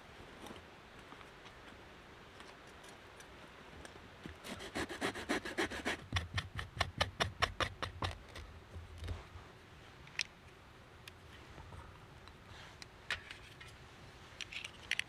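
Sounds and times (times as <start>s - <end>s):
hand saw cutting wood: 4.4s - 8.4s.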